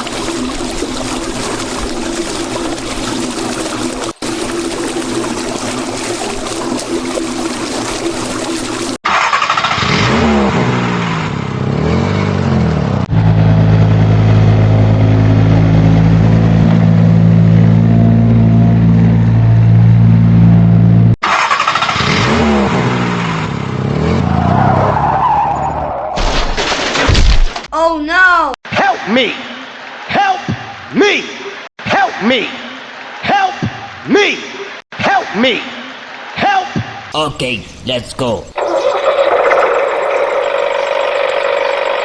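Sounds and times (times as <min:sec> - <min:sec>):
water spraying: 0:00.0 - 0:09.0
vehicle engine revving: 0:09.1 - 0:24.7, 0:38.6 - 0:42.0.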